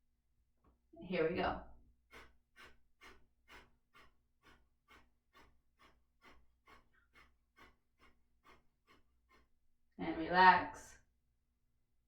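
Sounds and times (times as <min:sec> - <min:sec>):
forceful nasal exhalations: 0:02.1 - 0:09.5.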